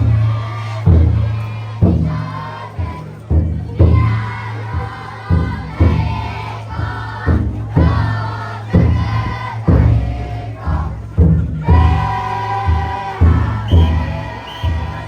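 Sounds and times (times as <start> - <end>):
big drum booming: 0.0 - 15.0
crowd chanting together: 0.0 - 15.0.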